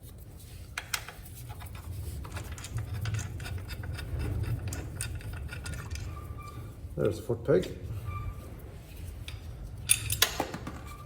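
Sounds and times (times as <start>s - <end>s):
small metal clicks and scraping: 0.7s - 6.2s.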